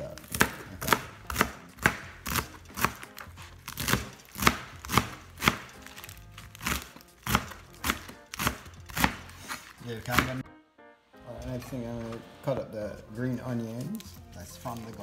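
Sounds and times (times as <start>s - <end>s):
knife chopping on plastic board: 0.1s - 10.4s.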